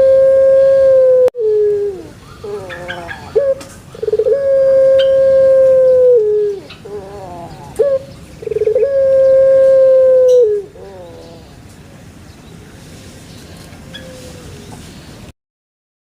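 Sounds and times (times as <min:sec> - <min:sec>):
dove cooing: 0:00.0 - 0:11.6, 0:13.8 - 0:14.8.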